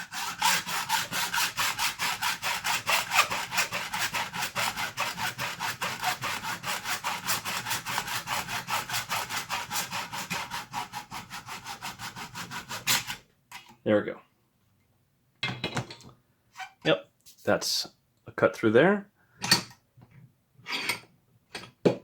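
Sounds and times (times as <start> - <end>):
hacksaw cutting plastic: 0.0 - 13.7.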